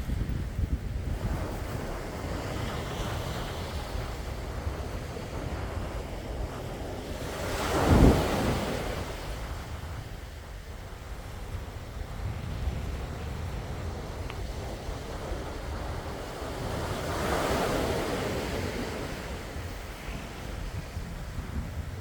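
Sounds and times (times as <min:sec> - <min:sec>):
wind on microphone: 0:00.0 - 0:22.0
sea waves breaking: 0:01.1 - 0:22.0.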